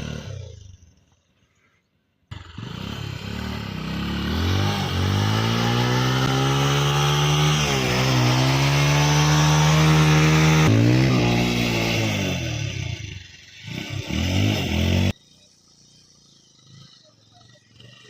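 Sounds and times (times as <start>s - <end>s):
motorcycle engine accelerating: 0.0s - 1.4s, 2.3s - 18.0s.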